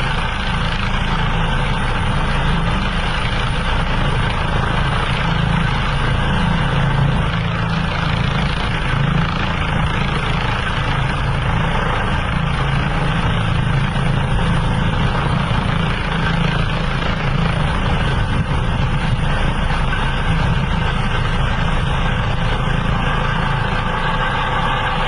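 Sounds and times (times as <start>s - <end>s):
helicopter engine and rotor drone: 0.0s - 25.0s.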